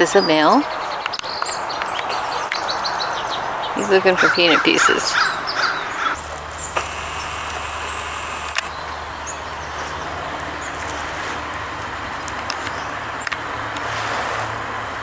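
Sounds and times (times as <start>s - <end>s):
car engine humming: 5.2s - 8.9s
sharp click: 6.7s - 8.7s.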